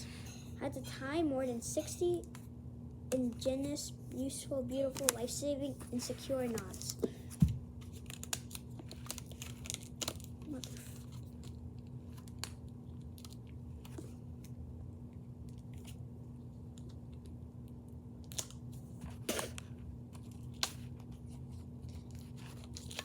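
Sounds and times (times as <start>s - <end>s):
steady low hum: 0.0s - 23.0s
book pages turning: 18.4s - 23.0s.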